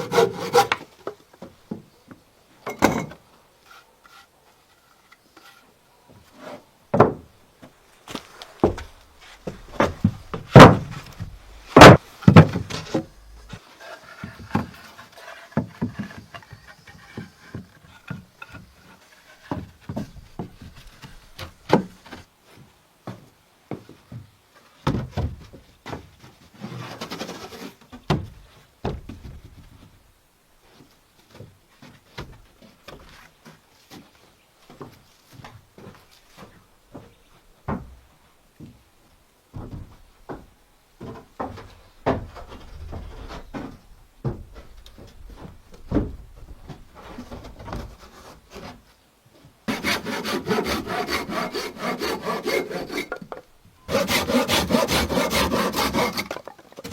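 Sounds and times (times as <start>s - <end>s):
wooden knocks and thuds: 6.9s - 7.8s, 8.6s - 13.6s, 15.5s - 18.6s, 23.1s - 26.1s, 27.9s - 29.9s, 36.9s - 38.0s, 39.5s - 48.8s
scraping rustle: 26.2s - 28.6s, 44.5s - 49.1s.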